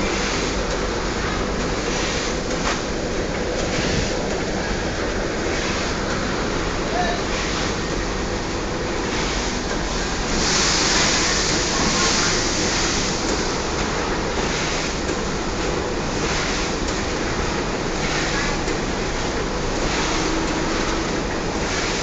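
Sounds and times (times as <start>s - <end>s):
packing machine rushing noise: 0.0s - 22.0s
machine hiss: 9.1s - 13.5s.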